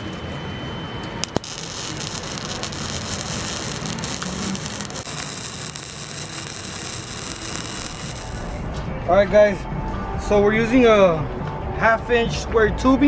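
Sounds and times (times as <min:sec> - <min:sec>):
welding arc crackling hiss: 0:01.2 - 0:08.7.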